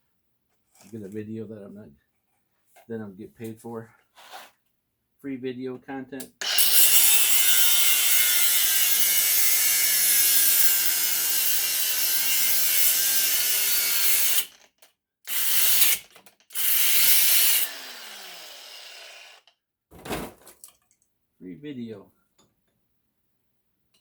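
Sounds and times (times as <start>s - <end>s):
electric power tool cutting metal: 6.4s - 14.7s, 15.3s - 19.5s.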